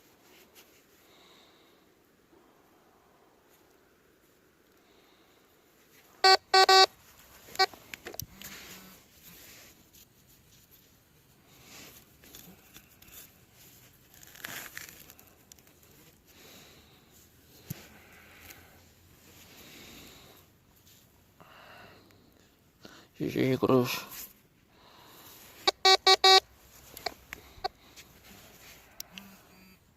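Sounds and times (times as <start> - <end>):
rustling and scraping: 0.0 - 1.1, 6.9 - 21.2, 26.5 - 29.0
metal detector beeping: 6.2 - 6.9, 25.7 - 26.4, 27.0 - 27.8.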